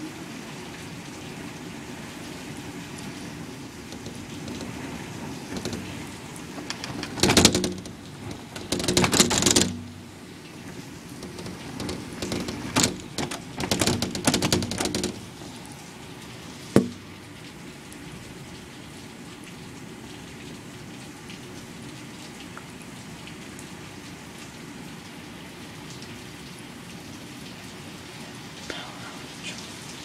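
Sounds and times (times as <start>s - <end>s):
heavy rain: 0.0s - 30.0s
sharp knock: 16.8s - 17.0s.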